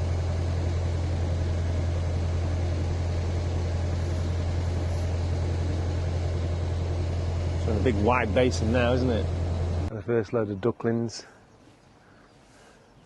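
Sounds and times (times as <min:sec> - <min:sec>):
boat diesel engine droning: 0:00.0 - 0:09.9.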